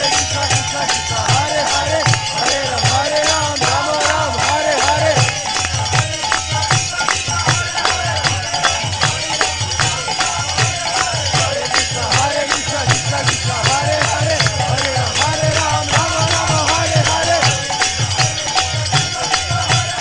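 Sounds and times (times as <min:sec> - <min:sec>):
drum steady beat: 0:00.0 - 0:20.0
hand cymbals struck rapidly: 0:00.0 - 0:20.0.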